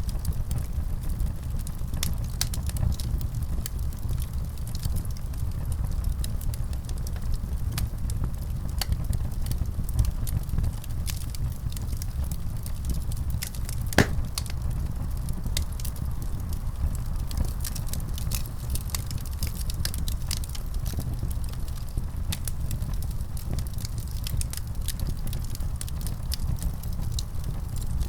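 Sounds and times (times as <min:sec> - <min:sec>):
low fire rumble: 0:00.0 - 0:28.0
wood fire crackling and popping: 0:01.4 - 0:14.8, 0:17.0 - 0:28.0.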